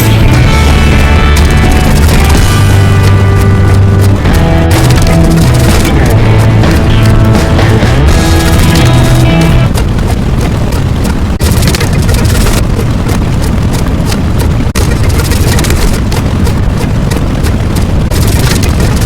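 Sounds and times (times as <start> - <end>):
dense rumbling with rapid crackles: 0.0 - 19.0.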